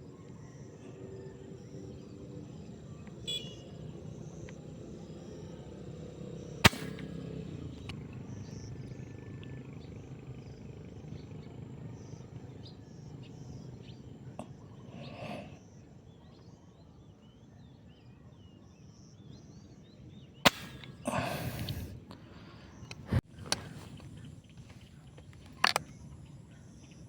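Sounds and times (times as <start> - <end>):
low outdoor rumble: 0.0 - 17.4
faint small bird chirps: 0.0 - 27.0
sharp crack: 6.6 - 8.0, 20.5 - 21.9.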